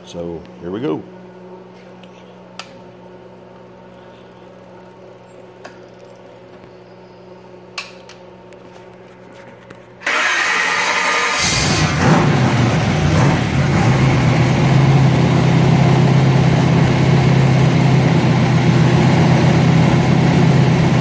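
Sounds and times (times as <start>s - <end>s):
steady low hum: 0.0s - 10.1s
engine firing up and running: 10.0s - 21.0s.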